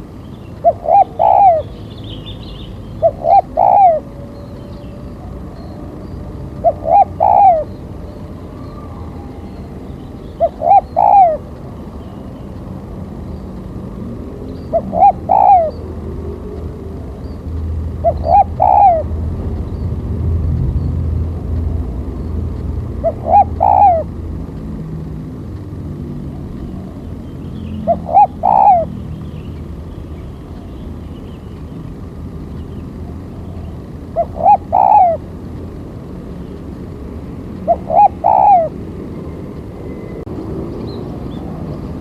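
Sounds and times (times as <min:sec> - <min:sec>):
steady low rumble: 0:00.0 - 0:42.0
dove cooing: 0:00.6 - 0:01.8, 0:03.0 - 0:11.6, 0:13.9 - 0:19.4, 0:22.9 - 0:24.2, 0:26.1 - 0:29.2, 0:33.1 - 0:35.3, 0:37.6 - 0:39.3.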